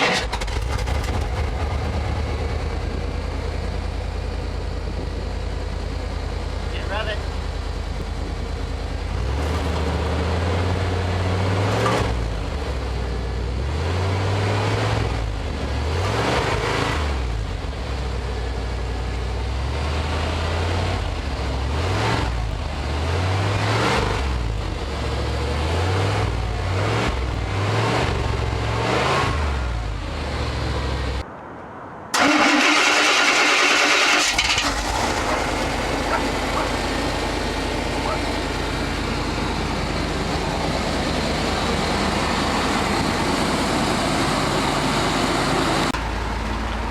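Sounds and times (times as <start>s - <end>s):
engine revving: 0.0s - 18.5s, 19.3s - 31.2s, 32.2s - 46.9s.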